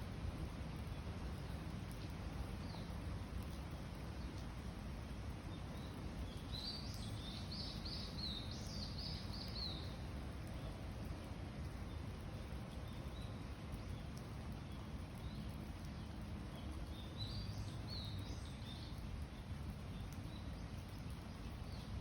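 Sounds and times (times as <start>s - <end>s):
low background noise: 0.0s - 22.0s
songbird chirping: 5.4s - 22.0s.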